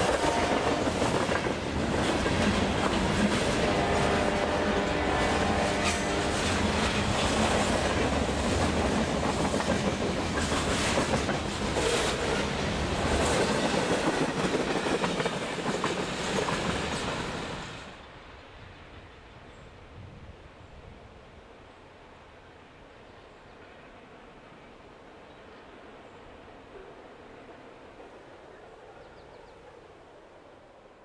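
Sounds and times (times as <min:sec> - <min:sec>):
train wheels clacking over rail joints: 0:00.0 - 0:17.6.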